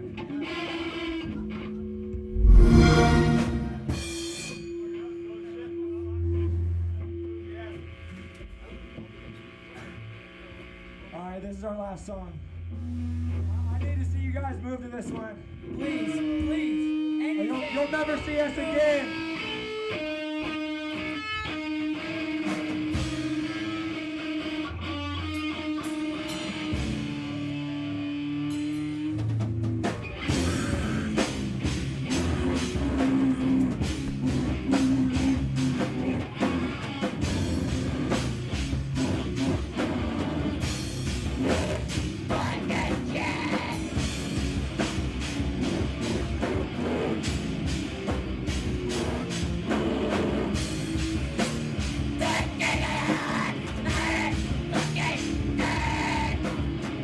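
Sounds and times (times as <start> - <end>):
electric guitar sustained notes: 0.0 - 4.5
heavy rock band playing: 0.0 - 5.0, 15.1 - 57.0.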